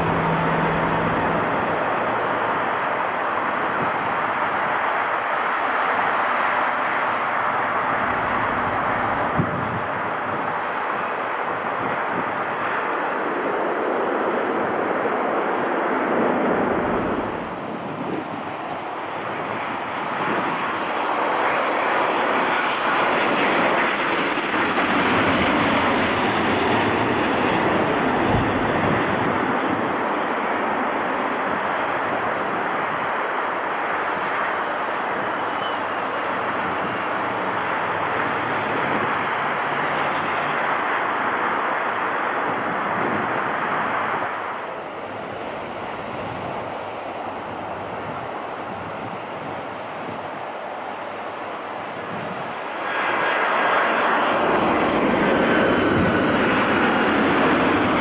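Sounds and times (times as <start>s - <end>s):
high jet engine whine: 0.0s - 58.0s
jet engines roaring: 0.0s - 58.0s.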